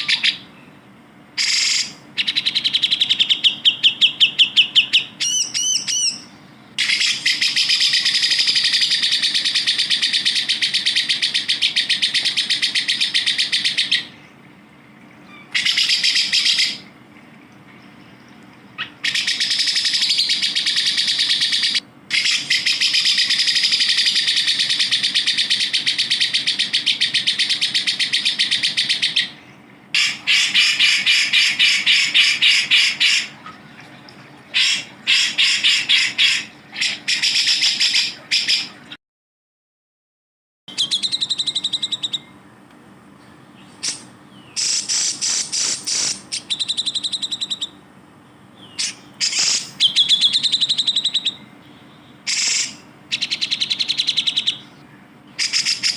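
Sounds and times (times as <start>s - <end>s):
songbird chattering trills: 0.0s - 14.4s, 15.2s - 16.9s, 17.8s - 33.6s, 40.7s - 42.4s, 43.2s - 55.9s
whistled bird notes: 1.4s - 14.2s, 40.7s - 42.4s, 43.2s - 47.8s, 48.4s - 54.8s.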